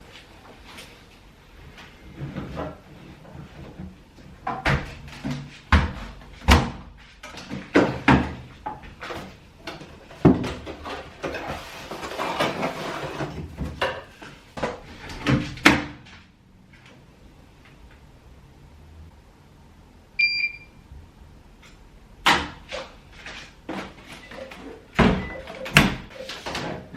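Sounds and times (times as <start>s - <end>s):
cupboard doors opening and shutting: 2.1s - 16.2s, 22.2s - 26.9s.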